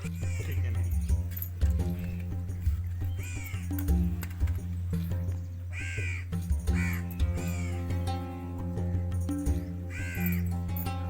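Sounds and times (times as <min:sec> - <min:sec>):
crow cawing: 0:00.0 - 0:00.6, 0:03.2 - 0:03.8, 0:05.7 - 0:08.0, 0:09.9 - 0:10.5
background music with bass line: 0:00.0 - 0:11.0.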